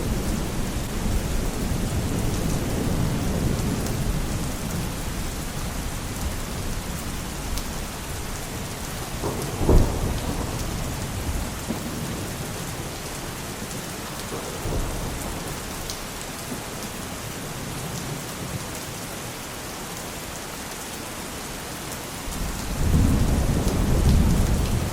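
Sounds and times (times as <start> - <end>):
rolling thunder: 0.0 - 6.7, 8.1 - 13.0, 22.3 - 24.9
heavy rain: 0.0 - 24.9
thunder crack: 9.1 - 12.3.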